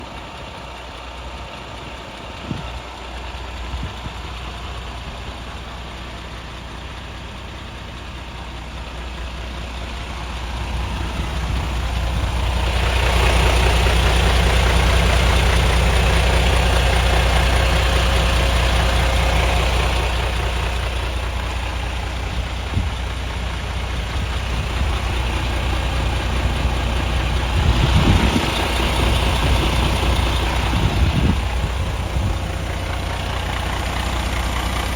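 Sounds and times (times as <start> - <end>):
truck diesel engine idling: 0.0 - 34.9.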